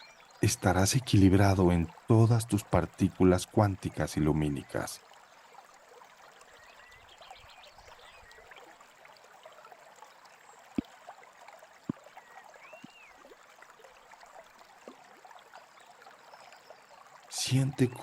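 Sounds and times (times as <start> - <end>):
brook gurgling and trickling: 0.0 - 18.0
water plops: 10.6 - 13.6
faint bird calls: 11.9 - 13.2.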